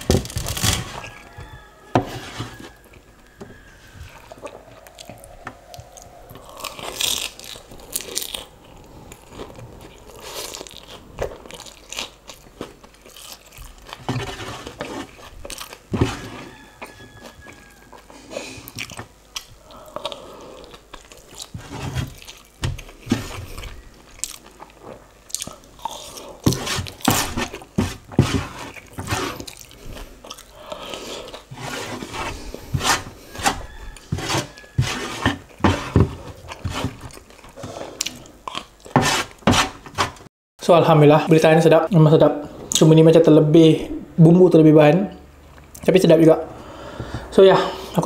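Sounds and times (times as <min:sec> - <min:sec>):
chewing and crunching noodles: 0:04.0 - 0:39.4.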